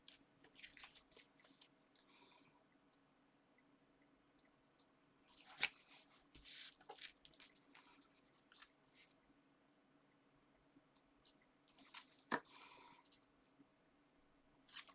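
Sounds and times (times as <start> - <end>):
paper rustling: 0.0 - 1.8, 5.3 - 8.7, 11.7 - 12.6, 14.7 - 14.9.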